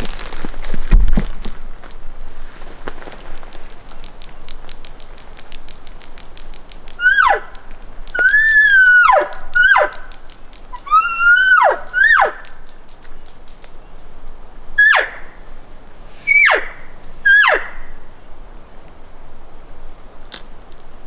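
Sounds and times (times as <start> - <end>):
faint rapid clicking: 2.7 - 14.0
elk whistled calls: 6.9 - 12.7, 14.7 - 18.2.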